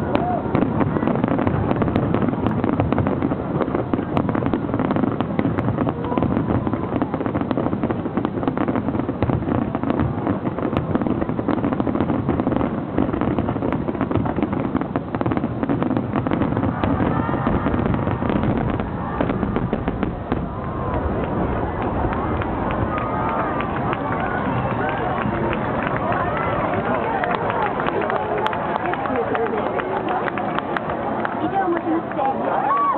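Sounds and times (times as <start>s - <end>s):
fireworks bursts and crackles: 0.0s - 32.9s.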